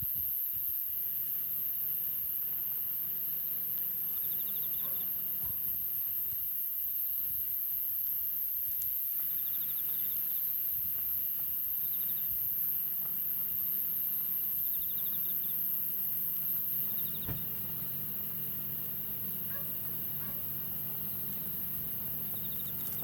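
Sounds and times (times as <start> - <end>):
insects droning: 0.0 - 23.0
trilled insect chirps: 14.7 - 23.0.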